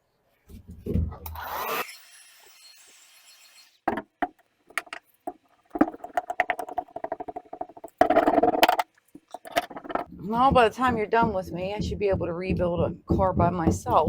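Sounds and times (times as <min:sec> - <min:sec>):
sharp knocks on mat: 0:03.9 - 0:05.0.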